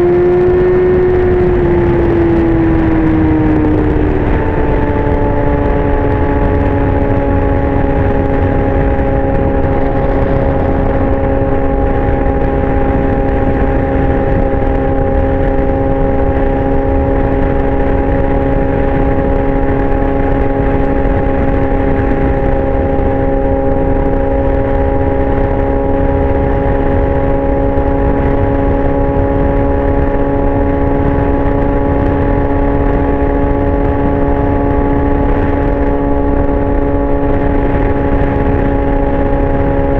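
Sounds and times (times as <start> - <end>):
motorcycle engine high-pitched note: 0.0 - 39.9
wind and road noise: 0.0 - 39.9.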